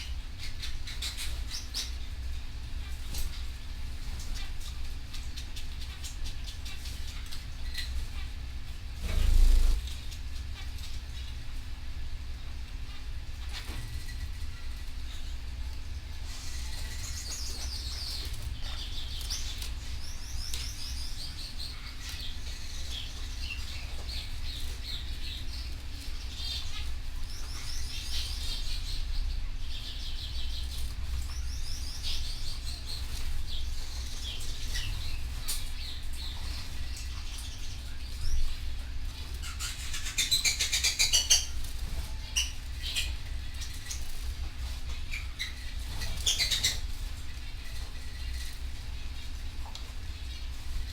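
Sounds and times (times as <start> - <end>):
canary singing: 0.0 - 11.4, 12.6 - 49.4
steady low hum: 0.0 - 50.9.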